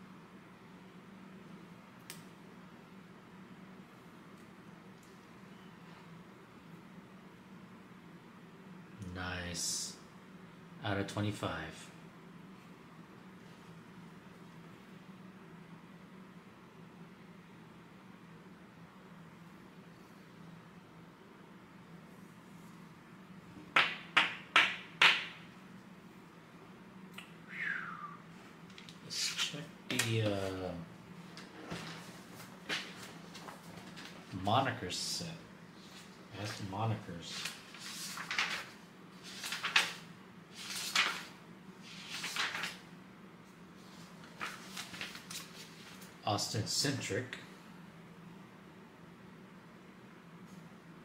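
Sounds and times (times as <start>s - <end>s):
trading cards rustling: 36.0s - 41.3s, 41.9s - 42.8s.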